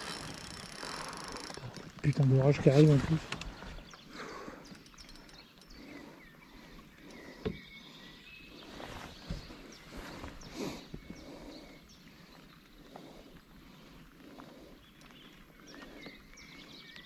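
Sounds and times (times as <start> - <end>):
light rain on river: 0.0 - 5.7.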